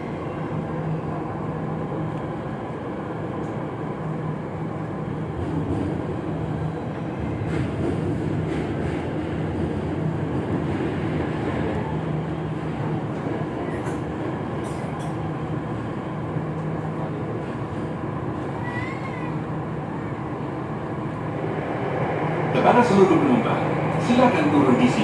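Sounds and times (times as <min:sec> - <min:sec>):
metro train rumble: 0:00.0 - 0:25.0.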